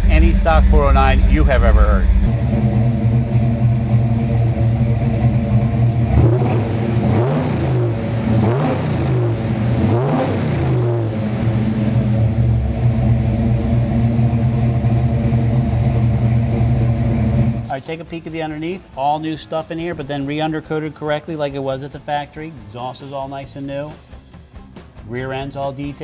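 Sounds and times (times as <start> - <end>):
car engine idling and revving: 0.0 - 17.7.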